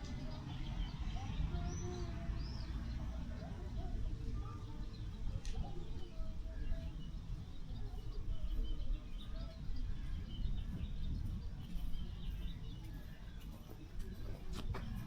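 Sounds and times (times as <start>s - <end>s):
small birds chirping: 0.0s - 15.0s
wind rumbling on microphone: 0.0s - 15.0s.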